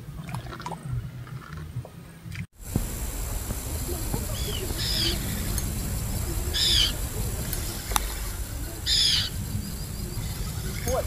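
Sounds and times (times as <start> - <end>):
bird calling: 2.6 - 11.0
steady low rumble: 2.6 - 11.0.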